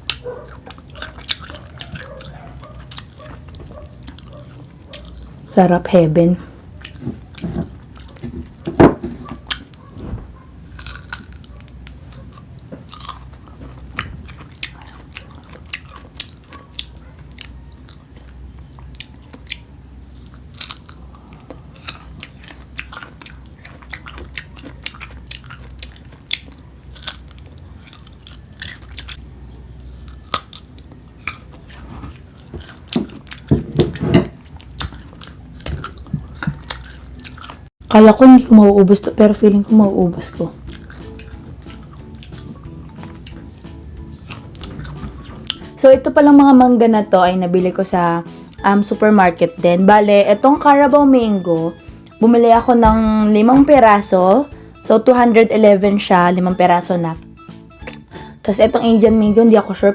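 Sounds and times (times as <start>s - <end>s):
crunchy bites and chewing: 0.0s - 5.4s, 10.6s - 37.7s, 40.6s - 45.8s.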